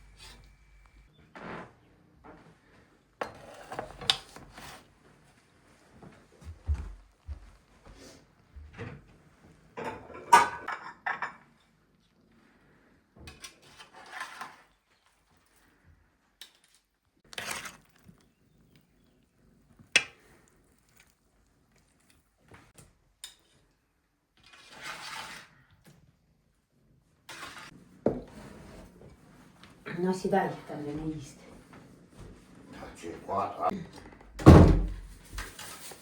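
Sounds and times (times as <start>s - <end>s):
dishes and cutlery clinking: 9.8s - 11.6s.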